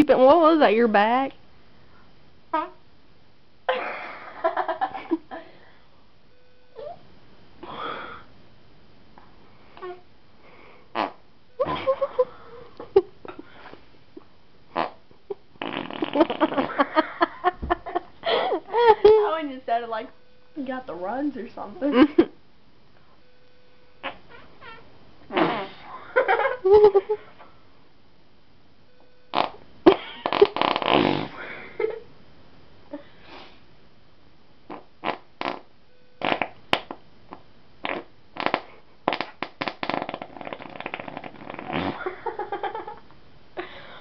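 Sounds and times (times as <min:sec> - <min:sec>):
person making fart noises: 0:09.8 - 0:10.1, 0:10.9 - 0:12.1, 0:14.7 - 0:17.8, 0:24.0 - 0:26.5, 0:29.3 - 0:31.4, 0:34.7 - 0:42.5.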